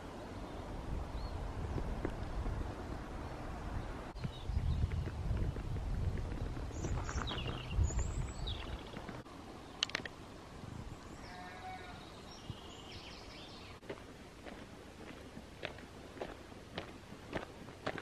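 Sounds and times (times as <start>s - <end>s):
wind rumble on microphone: 0.6s - 9.2s, 10.6s - 11.3s
birds chirping and whistling: 6.7s - 9.2s, 11.0s - 13.8s.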